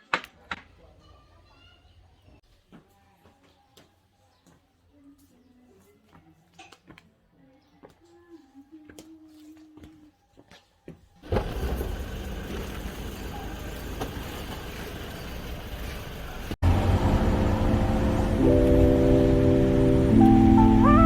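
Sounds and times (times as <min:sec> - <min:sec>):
vehicle road noise: 0:11.2 - 0:21.0.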